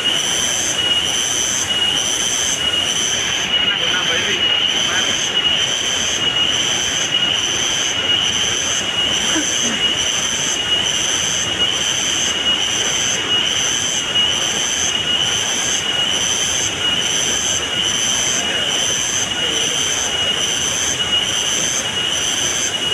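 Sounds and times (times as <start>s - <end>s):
insect chorus: 0.0s - 22.9s.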